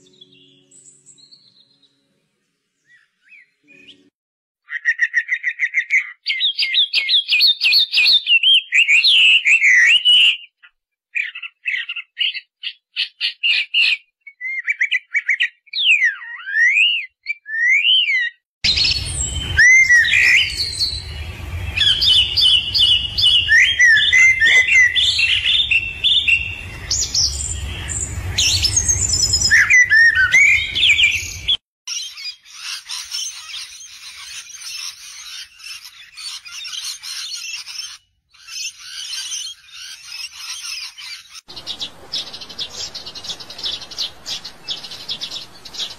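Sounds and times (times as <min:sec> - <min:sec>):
songbirds singing: 0:00.0 - 0:45.9
low rumble: 0:18.7 - 0:31.6.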